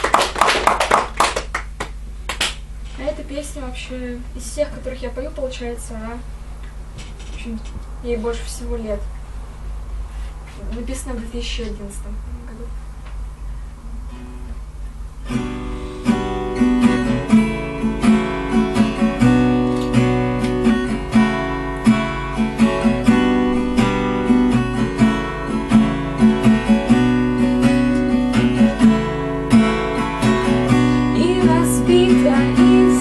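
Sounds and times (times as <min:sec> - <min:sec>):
acoustic guitar strumming: 0:14.0 - 0:33.0.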